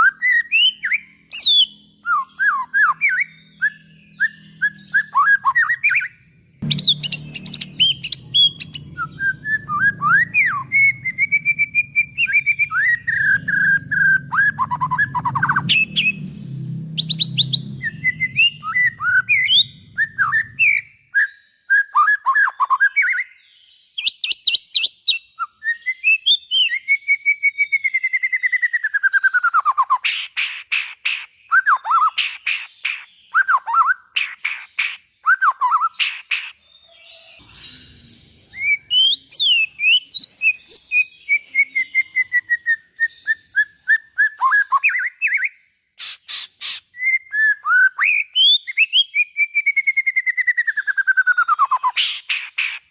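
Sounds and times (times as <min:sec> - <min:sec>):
bird singing whistled song: 0:00.0 - 0:52.9
low hum: 0:06.5 - 0:20.8.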